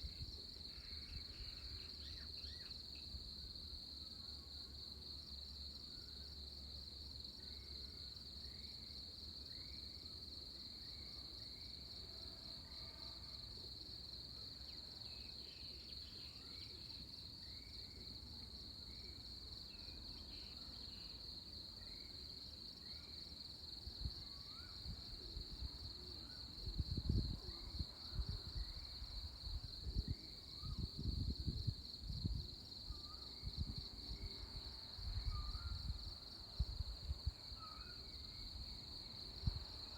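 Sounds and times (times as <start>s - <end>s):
pulsing insect chorus: 0.0s - 39.9s
wind buffeting microphone: 26.6s - 32.6s.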